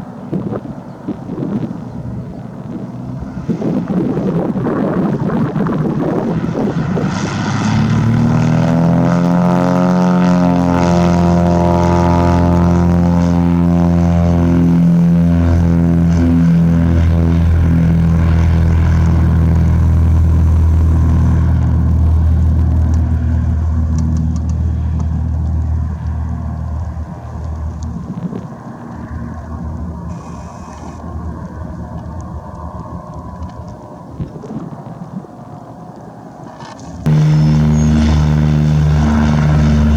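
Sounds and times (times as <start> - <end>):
propeller airplane droning: 0.0 - 29.3, 37.1 - 39.9
rough rumbling noise: 2.6 - 24.8, 37.1 - 39.9.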